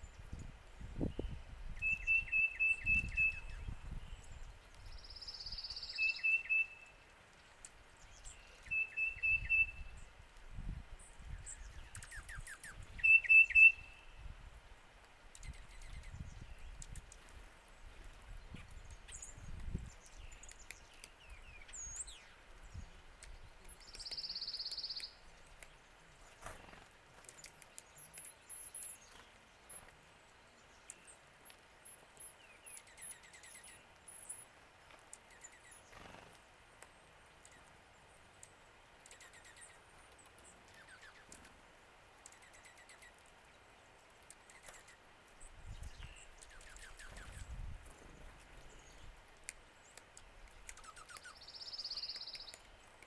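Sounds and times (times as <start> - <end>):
small birds chirping: 0.0 - 53.0
light clicks and taps: 49.3 - 51.3.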